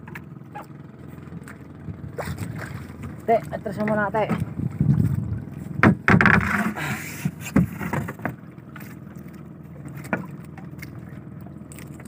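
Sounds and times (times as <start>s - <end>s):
water splashing: 0.0s - 12.0s
wind and sea wash: 1.3s - 12.0s
paddle knocking against hull: 1.4s - 12.0s.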